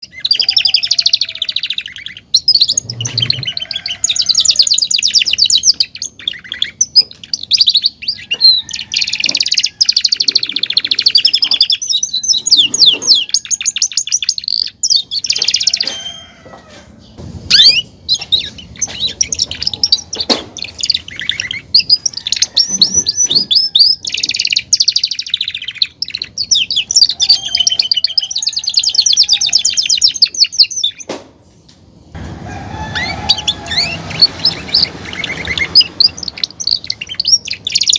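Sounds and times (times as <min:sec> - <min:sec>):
canary singing trills: 0:00.0 - 0:31.1, 0:32.4 - 0:37.9.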